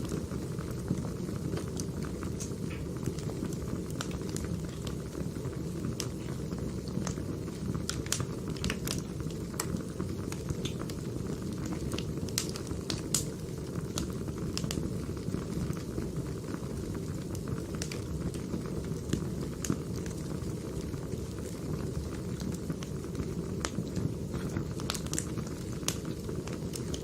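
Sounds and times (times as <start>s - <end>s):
low rumble of flames: 0.0s - 27.0s
firewood snapping and popping: 1.6s - 3.2s, 3.9s - 5.0s, 7.8s - 11.0s, 11.6s - 13.3s, 13.9s - 14.7s, 23.6s - 27.0s.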